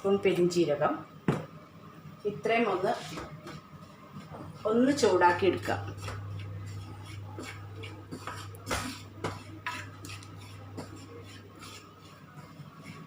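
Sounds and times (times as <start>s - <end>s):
steady low hum: 0.0s - 13.0s
spoon scraping a pan: 6.2s - 12.3s.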